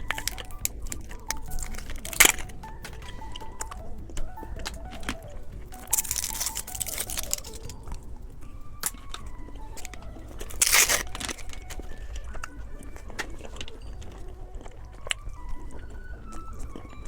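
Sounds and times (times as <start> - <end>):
candy wrapper crinkling: 0.0 - 8.1, 8.7 - 17.0
wrapper tearing rip: 5.8 - 7.8, 10.4 - 11.7.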